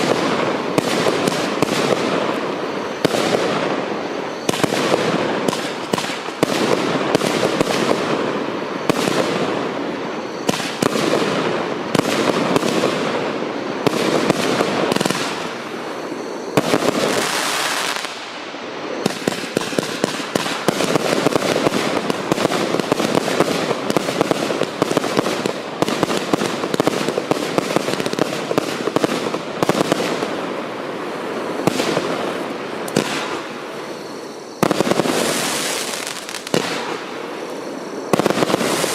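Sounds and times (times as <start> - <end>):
firework cake shots and bangs: 4.4 - 8.2, 10.4 - 13.2, 32.9 - 33.6.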